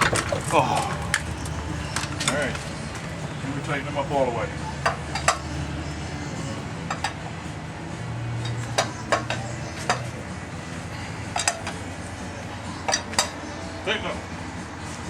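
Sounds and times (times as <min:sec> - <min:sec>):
lug wrench clinking on lug nuts: 0:00.0 - 0:05.6, 0:06.3 - 0:07.5, 0:08.4 - 0:10.2, 0:11.3 - 0:11.8, 0:12.8 - 0:13.6.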